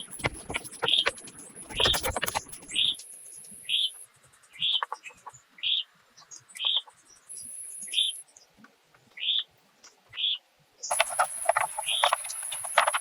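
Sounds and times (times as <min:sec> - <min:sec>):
high insect-like buzz: 0:10.9 - 0:13.0.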